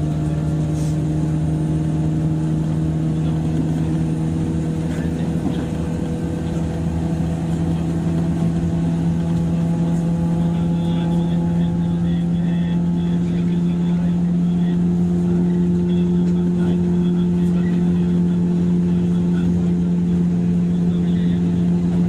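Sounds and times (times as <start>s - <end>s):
electric train motor hum: 0.0s - 22.0s.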